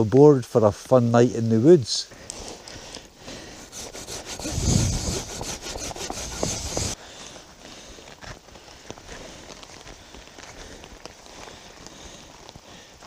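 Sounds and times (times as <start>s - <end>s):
hand saw cutting wood: 3.6s - 7.0s.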